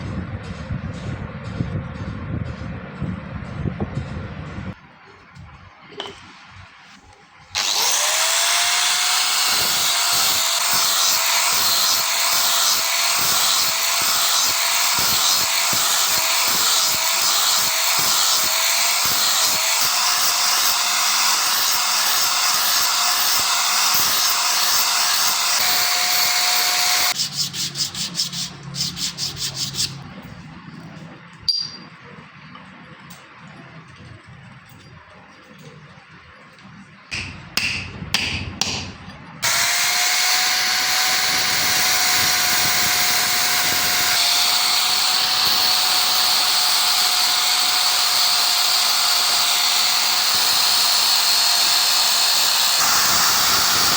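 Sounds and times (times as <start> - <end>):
electric power tool whining: 7.5 - 27.2, 39.4 - 53.9
sharp knock: 37.1 - 39.0.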